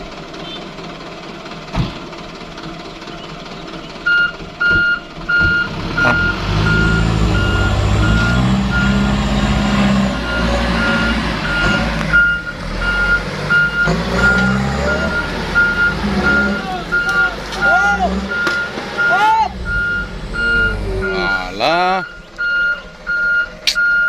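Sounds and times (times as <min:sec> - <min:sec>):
truck engine running: 0:00.0 - 0:24.0
truck reversing alarm beeping: 0:03.0 - 0:24.0.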